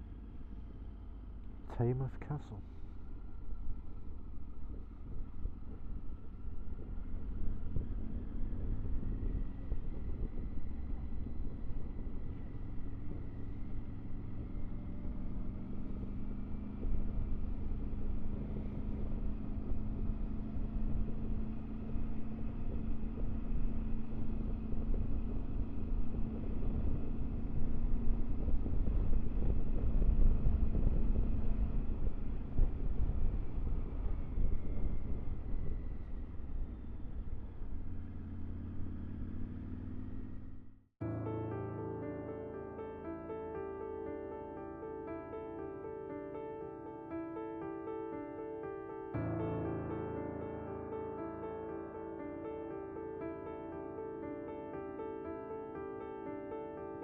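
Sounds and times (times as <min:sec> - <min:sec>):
wind and road noise: 0:00.0 - 0:57.0
motorcycle engine running: 0:02.7 - 0:40.9.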